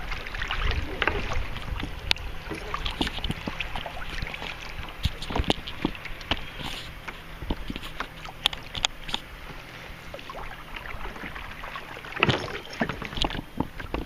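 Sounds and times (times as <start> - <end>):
water noise: 0.0 - 14.0
clicks and knocks on kayak: 0.9 - 9.6, 12.2 - 14.0.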